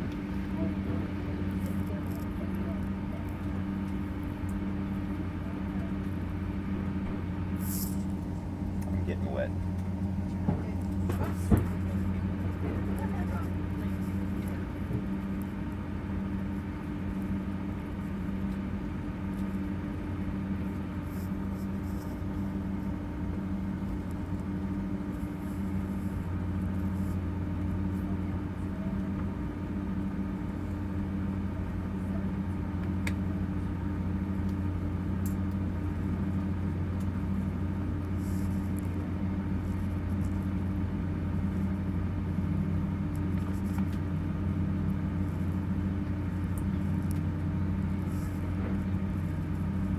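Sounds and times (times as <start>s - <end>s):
airliner cabin drone: 0.0s - 49.9s.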